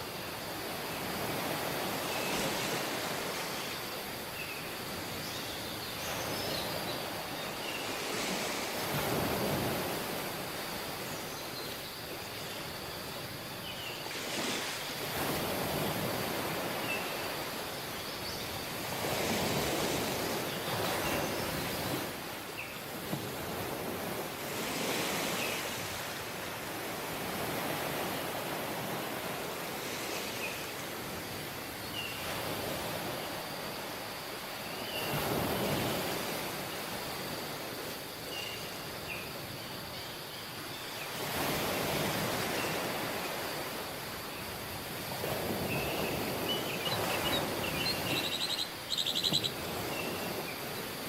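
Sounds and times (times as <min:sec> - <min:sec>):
waves washing on beach: 0:00.0 - 0:51.0.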